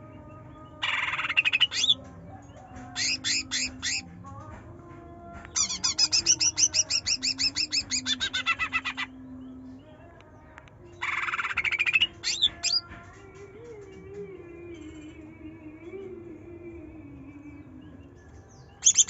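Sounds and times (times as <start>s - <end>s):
bird buzzy trill: 0.8s - 2.0s, 2.9s - 4.1s, 5.6s - 9.2s, 11.0s - 12.9s, 18.8s - 19.0s
bird singing whistled notes: 5.6s - 9.6s, 18.0s - 19.0s.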